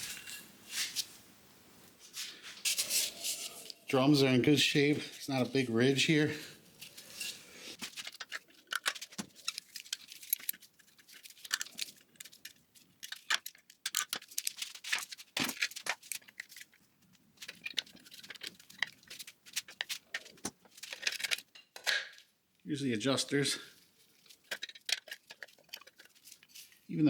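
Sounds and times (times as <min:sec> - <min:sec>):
metal parts clicking and rattling: 0:06.8 - 0:16.8, 0:17.4 - 0:22.0, 0:24.2 - 0:26.8.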